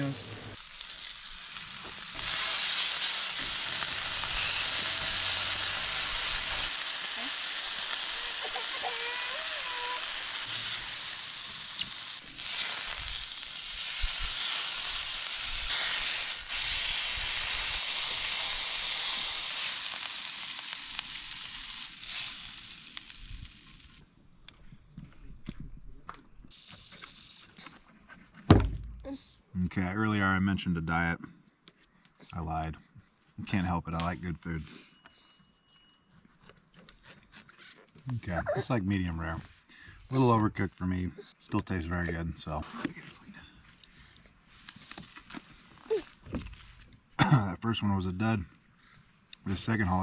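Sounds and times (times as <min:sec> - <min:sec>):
food sizzling while frying: 0:00.0 - 0:24.0.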